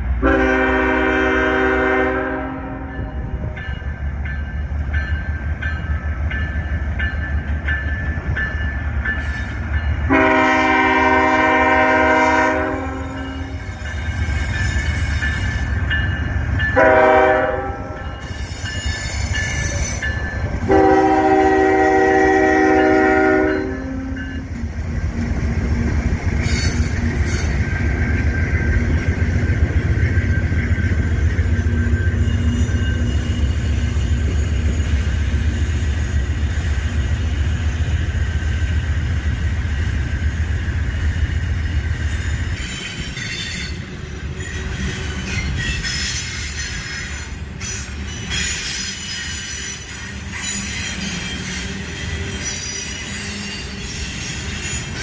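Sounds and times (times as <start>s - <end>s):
diesel train rumbling past: 0.0s - 55.0s
train horn blast: 0.2s - 3.4s, 10.1s - 13.7s, 16.8s - 18.2s, 20.6s - 24.4s.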